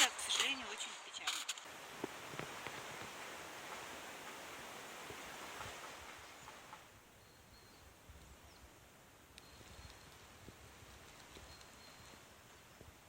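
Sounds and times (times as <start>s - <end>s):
steady noisy hiss: 0.0s - 13.0s
faint bird chirps: 2.5s - 12.9s.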